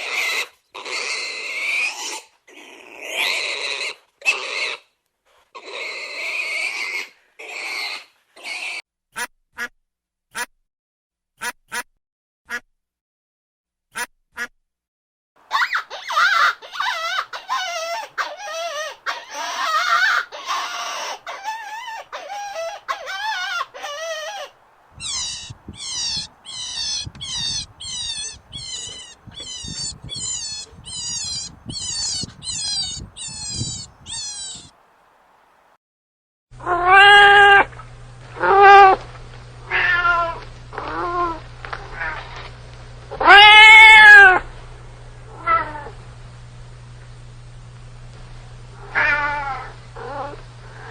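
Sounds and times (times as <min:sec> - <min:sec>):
harsh pitched animal calls: 0:00.0 - 0:04.9, 0:15.5 - 0:34.8, 0:36.6 - 0:37.7, 0:43.1 - 0:44.4, 0:48.8 - 0:50.9
short falling high calls: 0:18.6 - 0:34.8
cat meowing loudly: 0:22.5 - 0:34.7, 0:36.6 - 0:37.7, 0:38.4 - 0:39.0, 0:39.6 - 0:42.4, 0:43.1 - 0:44.4, 0:45.3 - 0:45.9, 0:48.8 - 0:50.4
steady low hum: 0:24.6 - 0:34.7, 0:37.4 - 0:43.5, 0:44.2 - 0:50.9.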